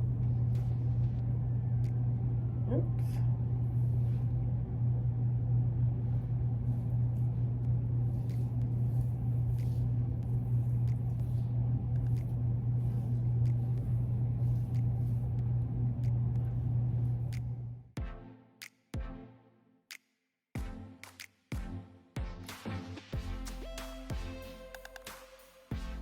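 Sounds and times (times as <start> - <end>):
low machine hum: 0.0 - 17.9.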